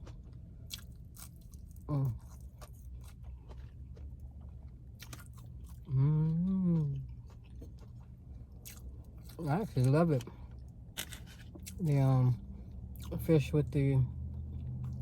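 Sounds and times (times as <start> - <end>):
person chewing crunchy food: 0.0 - 12.0
person saying mmm: 5.9 - 7.0.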